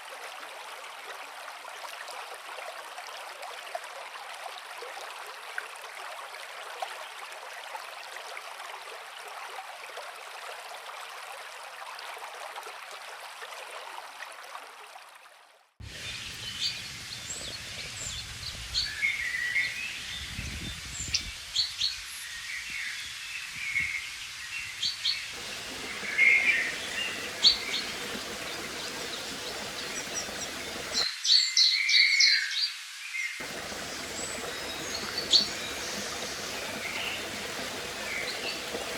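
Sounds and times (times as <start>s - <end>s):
river flowing: 25.4s - 31.1s, 33.4s - 38.9s
songbirds chirping and singing: 25.4s - 32.5s, 33.4s - 38.9s.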